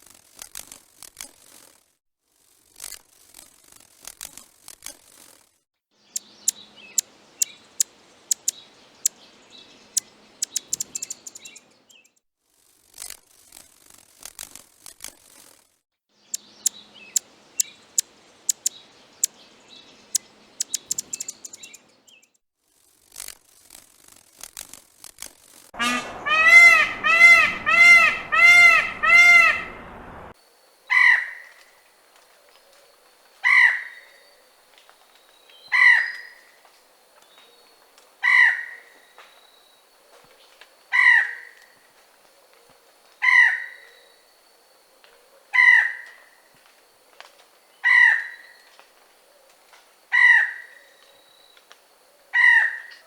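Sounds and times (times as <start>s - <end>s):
short bird calls: 6.1s - 9.2s, 9.9s - 11.7s, 20.0s - 21.9s
bird ringing calls: 6.2s - 9.2s, 10.0s - 12.1s, 16.3s - 19.4s, 20.1s - 22.3s
sharp taps: 8.3s - 8.5s, 10.4s - 11.6s, 18.5s - 18.7s, 20.6s - 21.7s.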